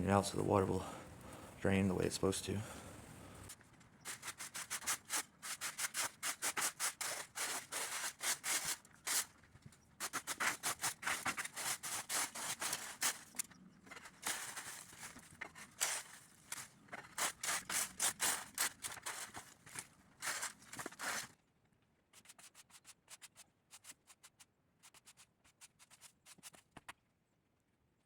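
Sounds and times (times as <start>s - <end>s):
hand tool scraping the ground: 4.1s - 9.4s, 10.0s - 21.4s.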